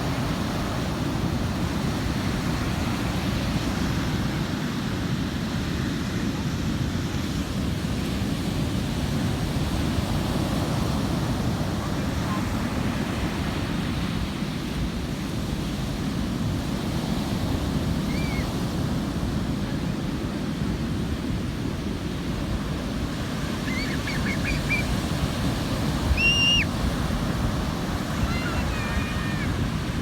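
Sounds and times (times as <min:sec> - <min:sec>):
ocean surf on a beach: 0:00.0 - 0:30.0
short high-pitched calls: 0:23.6 - 0:24.8, 0:26.2 - 0:26.7.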